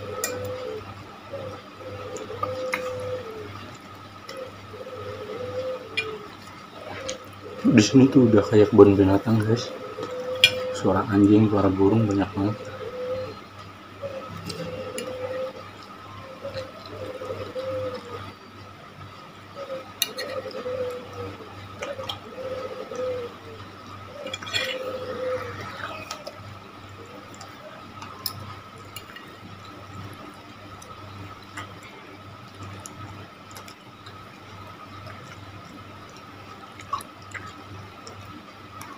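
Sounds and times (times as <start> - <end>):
dove cooing: 0.0 - 36.6
steady hum: 0.0 - 38.9
wet chewing sounds: 27.3 - 38.9.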